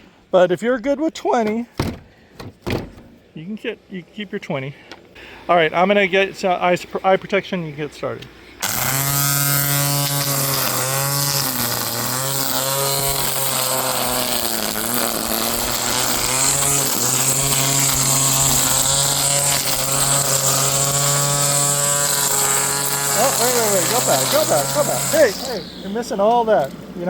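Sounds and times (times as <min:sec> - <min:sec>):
string trimmer motor whine: 0:08.6 - 0:27.0.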